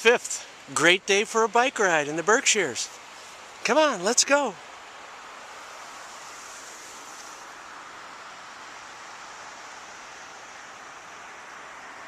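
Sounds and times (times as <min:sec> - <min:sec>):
bike tyre noise on road: 0:05.5 - 0:11.0.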